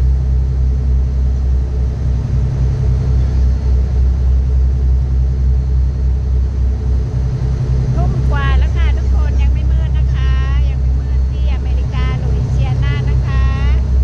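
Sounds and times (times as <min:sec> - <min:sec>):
strong wind buffeting microphone: 0:07.4 - 0:14.0.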